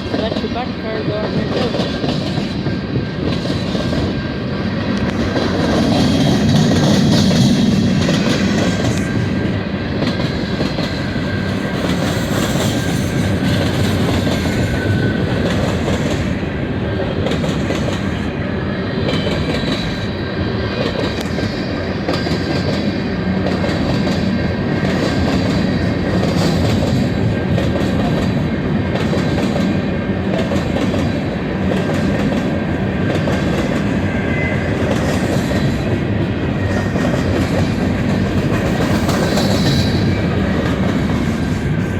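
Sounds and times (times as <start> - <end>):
train wheels clickety-clack: 0.0 - 41.9.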